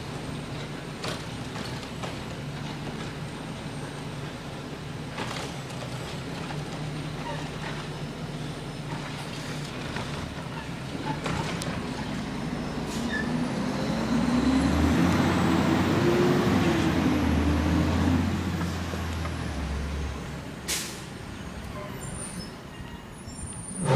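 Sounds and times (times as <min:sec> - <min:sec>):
diesel truck engine revving: 0:11.5 - 0:21.0
air brake hiss: 0:20.7 - 0:21.1.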